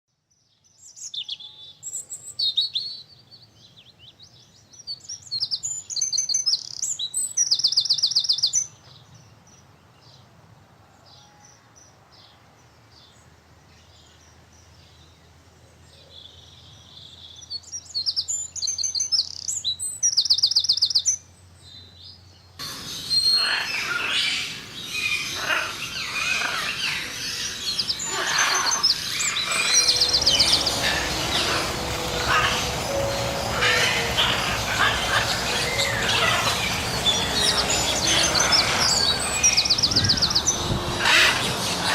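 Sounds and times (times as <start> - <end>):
songbird singing with trills: 0.5 - 9.3, 15.9 - 41.9
dense bird chirping: 22.6 - 41.9
noisy background: 27.4 - 41.9.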